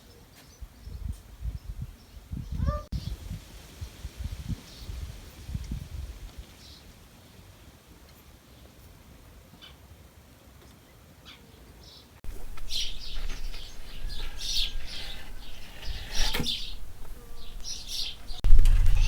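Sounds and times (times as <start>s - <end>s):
small birds chirping: 10.7s - 19.0s.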